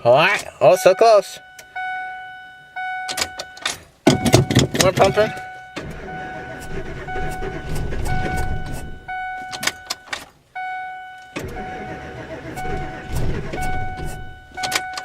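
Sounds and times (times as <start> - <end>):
warning chime tone: 0.6 - 10.0, 10.6 - 15.0
engine cranking by starter: 4.1 - 9.8, 11.3 - 15.0.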